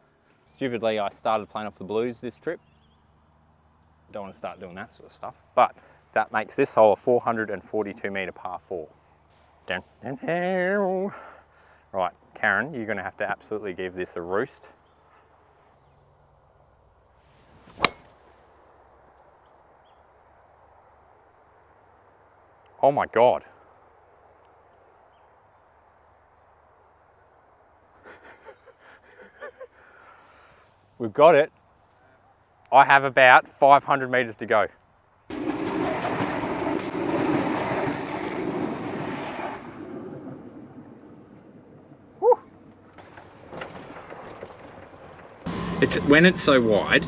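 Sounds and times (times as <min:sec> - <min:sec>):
golf club swish: 0:17.5 - 0:18.2
golf ball impact crack: 0:17.7 - 0:18.2
train wheels clattering on rails: 0:35.3 - 0:39.9, 0:43.0 - 0:45.4.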